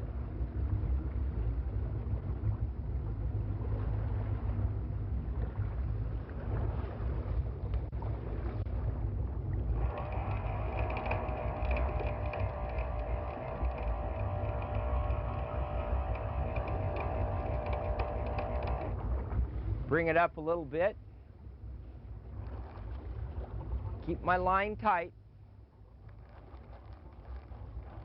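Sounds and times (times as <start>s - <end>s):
wind on microphone: 0.0s - 20.1s
boat engine rumble: 0.0s - 28.0s
steady multi-pitched whine: 9.6s - 19.3s.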